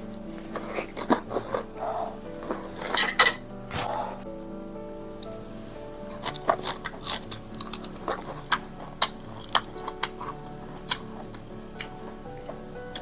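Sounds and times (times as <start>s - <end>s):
soft background music: 0.0s - 13.0s
person chewing: 6.1s - 12.3s.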